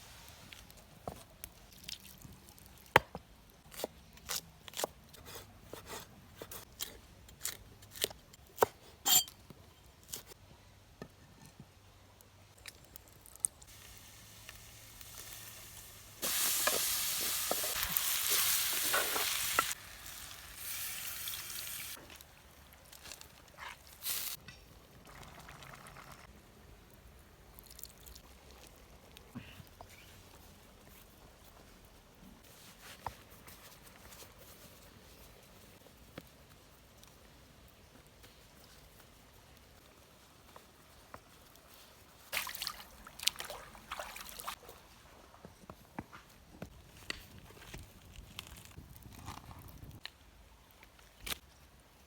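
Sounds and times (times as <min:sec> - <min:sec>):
food sizzling in hot oil: 0:13.7 - 0:22.0.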